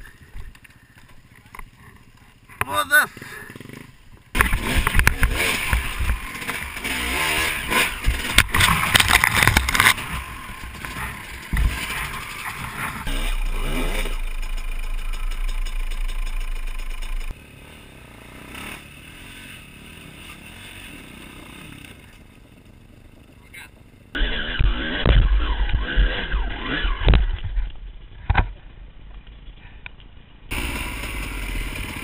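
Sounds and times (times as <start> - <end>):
dirt bike engine revving: 2.7 - 23.1, 24.0 - 27.4, 30.5 - 32.0.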